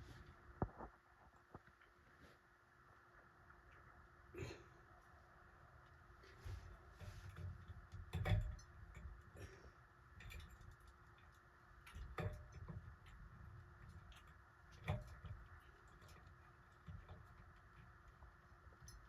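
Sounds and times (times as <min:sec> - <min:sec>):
light clicks and knocks: 0:06.3 - 0:19.0.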